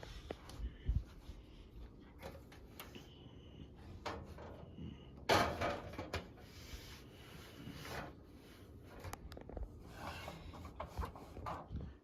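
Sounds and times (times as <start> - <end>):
knocks and scrapes of metal fan: 3.9 - 12.0.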